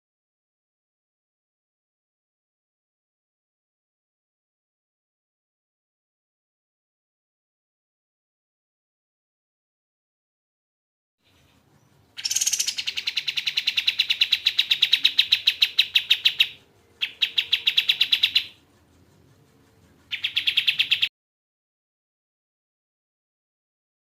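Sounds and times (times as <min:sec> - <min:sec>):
songbird chattering trill: 0:11.3 - 0:18.6, 0:20.1 - 0:21.1.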